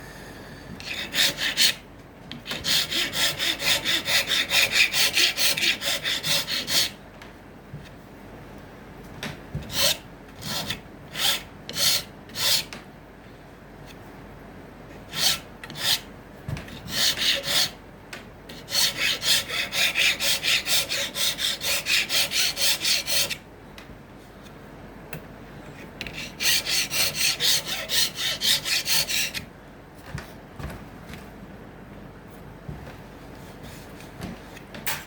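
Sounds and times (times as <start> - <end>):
hand sanding wood: 0.8 - 1.8, 2.5 - 7.0, 16.9 - 17.8, 18.6 - 23.4, 26.2 - 29.4.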